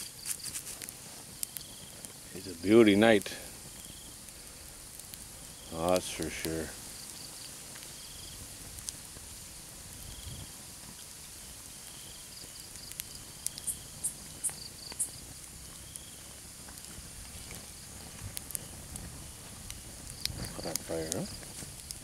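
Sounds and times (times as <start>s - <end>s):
campfire crackling: 0.0s - 22.0s
night insects chirping: 0.0s - 22.0s.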